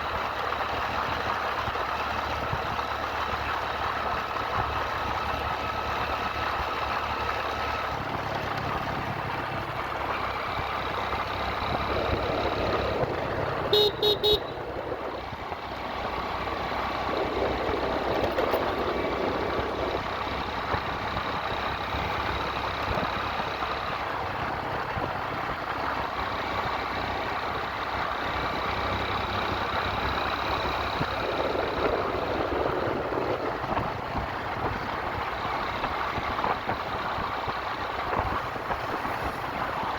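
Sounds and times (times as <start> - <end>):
motorcycle engine running: 0.0 - 39.9
road and wind noise: 0.0 - 39.9
horn toots: 13.7 - 14.6.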